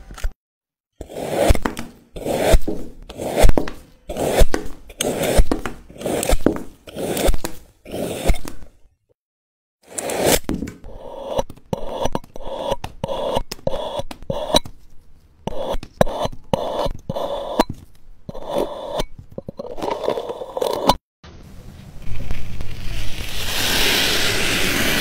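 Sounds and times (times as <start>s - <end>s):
scraping strokes: 1.0s - 8.8s.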